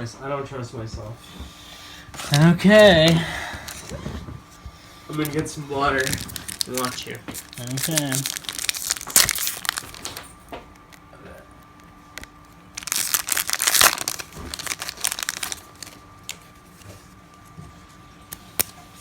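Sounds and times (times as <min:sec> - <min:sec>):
card pack wrapper tearing: 0:05.1 - 0:10.2, 0:12.2 - 0:16.5.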